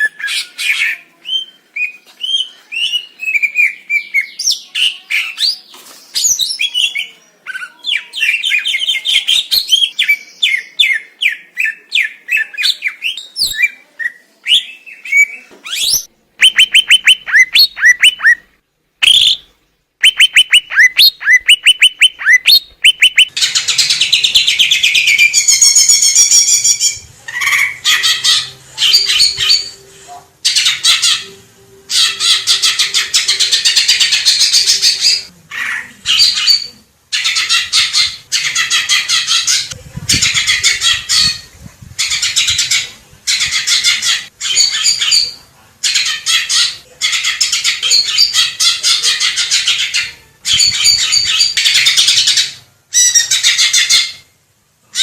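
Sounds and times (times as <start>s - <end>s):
bird singing fast varied song: 15.8s - 18.4s, 20.0s - 23.3s.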